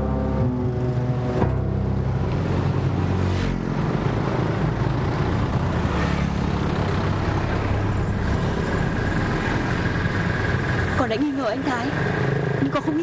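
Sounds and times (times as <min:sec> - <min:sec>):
motorbikes and cars passing: 0:00.0 - 0:13.0.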